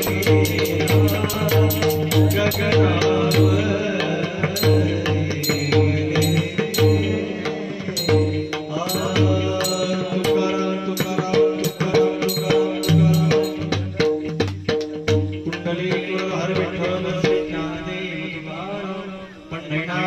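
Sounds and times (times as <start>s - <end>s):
steady held notes: 0.0s - 14.3s
people singing: 0.0s - 14.5s, 15.4s - 20.0s
barrel drum playing fast rhythm: 0.0s - 17.6s.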